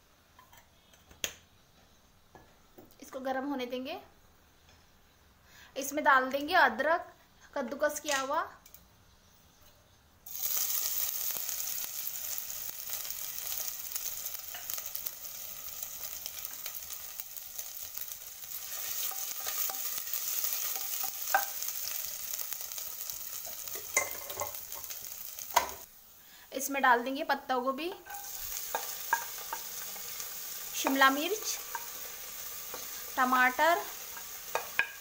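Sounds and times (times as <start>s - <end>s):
ginger sizzling in hot oil: 10.2s - 35.0s.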